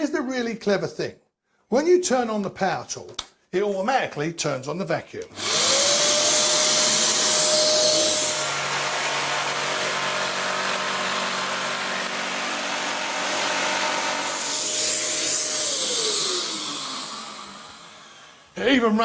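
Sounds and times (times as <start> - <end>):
motor winding down: 5.3 - 18.6
power tool working wood: 5.3 - 18.6
vacuum running: 5.3 - 18.6.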